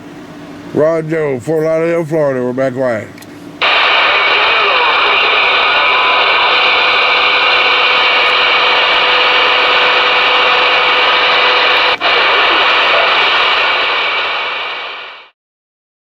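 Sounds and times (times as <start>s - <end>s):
radio static hiss: 3.6s - 15.4s.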